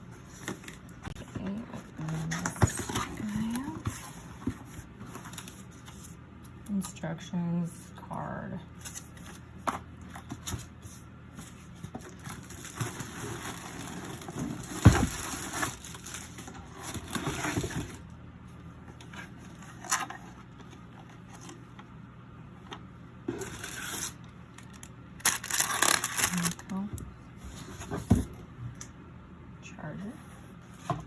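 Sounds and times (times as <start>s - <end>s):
packaging rustling and crinkling: 10.2s - 18.1s, 23.3s - 27.0s.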